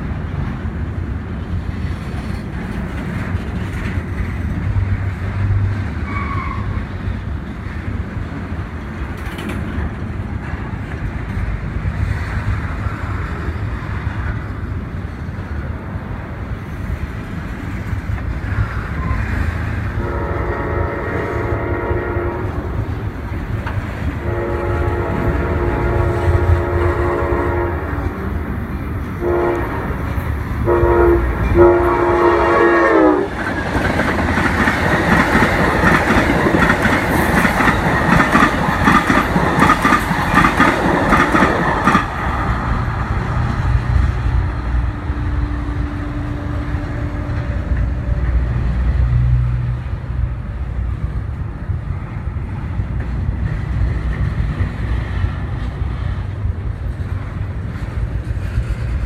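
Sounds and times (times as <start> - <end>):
train wheels clattering on rails: 0.0 - 59.0
train horn blasts: 19.9 - 22.8, 24.2 - 28.3, 29.2 - 33.4, 44.6 - 49.6.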